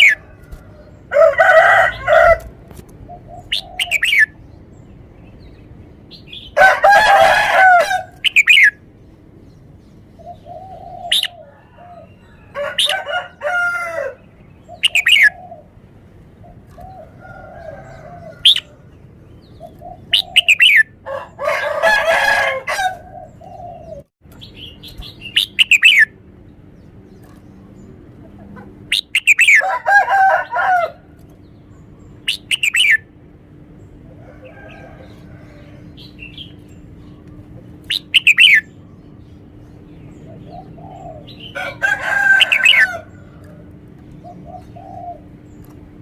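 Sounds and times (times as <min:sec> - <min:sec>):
lower rough bird calls: 0:00.0 - 0:04.4, 0:06.2 - 0:08.8, 0:16.4 - 0:26.2
bulbul whistling song: 0:03.2 - 0:04.4, 0:08.1 - 0:08.8, 0:14.6 - 0:15.5, 0:19.6 - 0:21.0, 0:24.4 - 0:26.2, 0:28.9 - 0:29.6, 0:32.2 - 0:33.1, 0:37.8 - 0:38.8.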